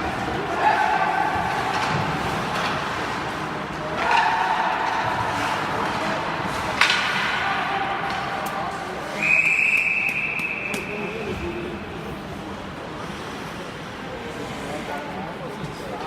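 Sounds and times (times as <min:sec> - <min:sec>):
referee's whistle: 0:09.1 - 0:11.6.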